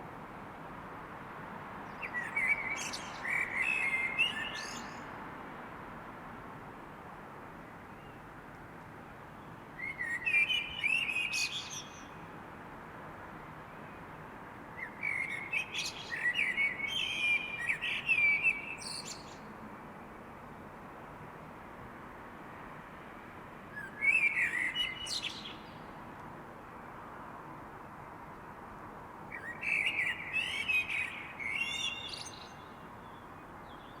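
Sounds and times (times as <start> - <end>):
songbird singing: 1.8 - 5.2, 9.4 - 12.4, 14.7 - 20.2, 23.7 - 26.0, 29.2 - 34.0.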